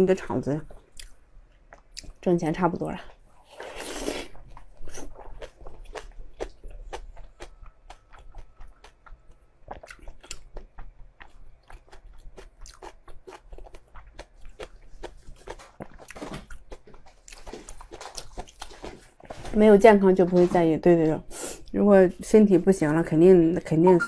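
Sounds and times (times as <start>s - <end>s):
crunchy chewing of meat: 3.6s - 19.4s.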